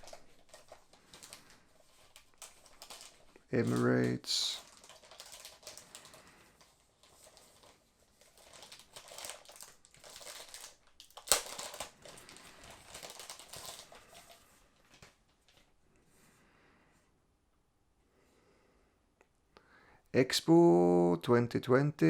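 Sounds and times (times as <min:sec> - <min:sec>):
packaging crinkling and rustling: 0:00.0 - 0:15.8.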